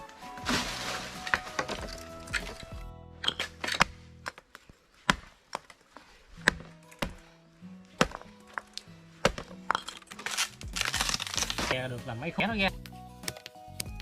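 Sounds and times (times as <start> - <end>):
axe chopping bamboo: 6.4 - 7.2, 8.0 - 8.3, 9.2 - 9.6.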